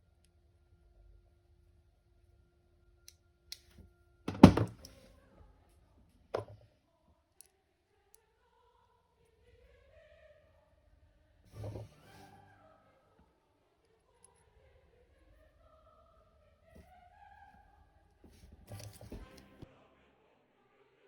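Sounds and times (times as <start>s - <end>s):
parts clattering knock: 4.3s - 4.9s, 6.4s - 6.6s.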